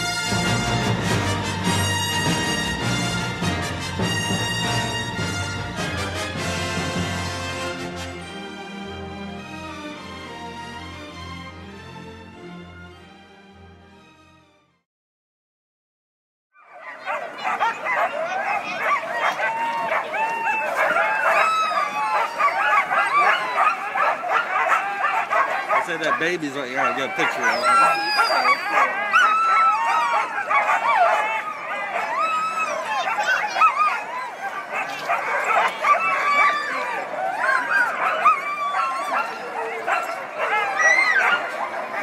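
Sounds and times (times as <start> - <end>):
sled dogs barking and yipping: 16.6 - 42.0.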